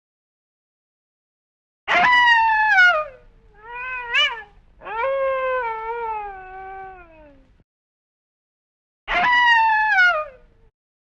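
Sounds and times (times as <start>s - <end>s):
wolf howling: 1.9s - 7.5s, 9.1s - 10.5s.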